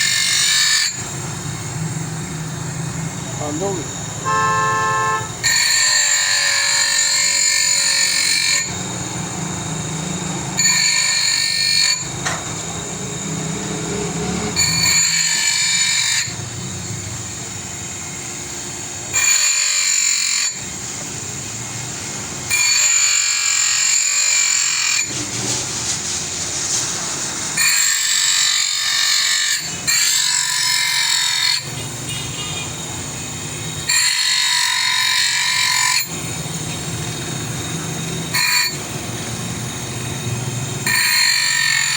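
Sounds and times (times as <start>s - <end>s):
power tool whining: 0.0s - 41.9s.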